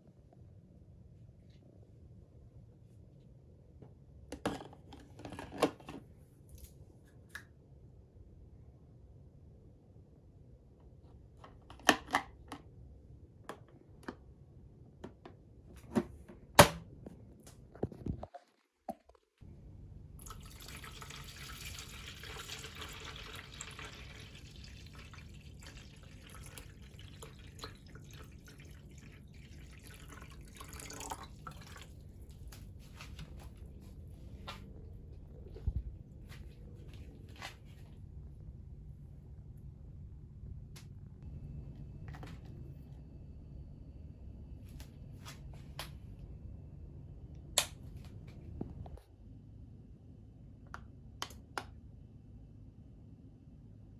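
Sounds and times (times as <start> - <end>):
water trickling and dripping: 20.2 - 32.7.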